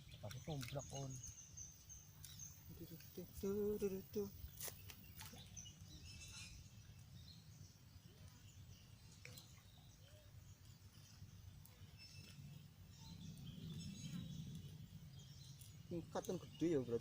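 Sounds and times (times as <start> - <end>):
faint bird chirps: 0.0 - 17.0
steady low rumble: 12.3 - 16.6.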